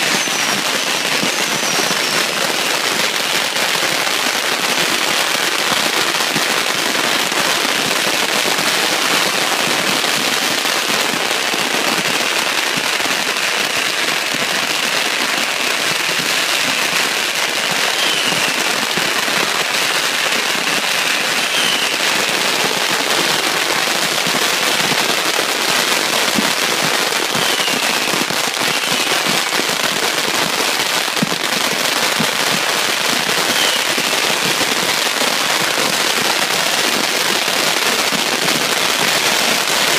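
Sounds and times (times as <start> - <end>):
firework whistles: 0.0 - 6.8, 15.6 - 30.6, 31.2 - 39.9
firecrackers crackling: 0.0 - 39.9.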